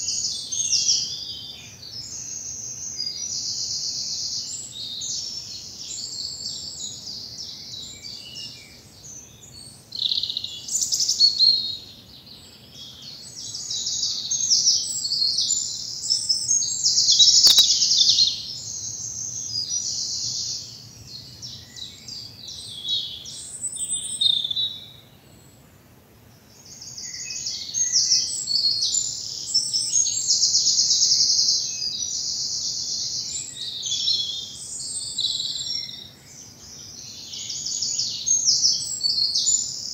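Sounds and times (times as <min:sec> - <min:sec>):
songbirds trilling chorus: 0:00.0 - 0:25.6.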